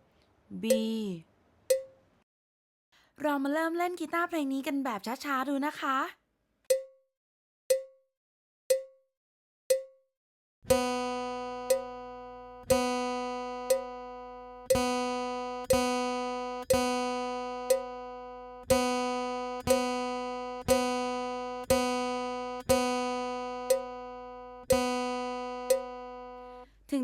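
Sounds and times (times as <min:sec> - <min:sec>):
steady beat click: 0:10.7 - 0:14.1, 0:14.7 - 0:26.2
acoustic guitar string plucked: 0:10.7 - 0:26.6.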